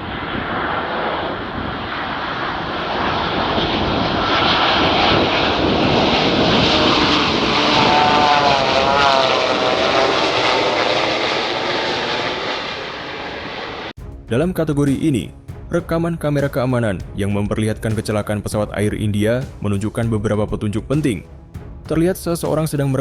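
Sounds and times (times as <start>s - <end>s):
loud rushing aircraft noise: 0.0s - 14.0s
wavering propeller hum: 0.0s - 14.0s.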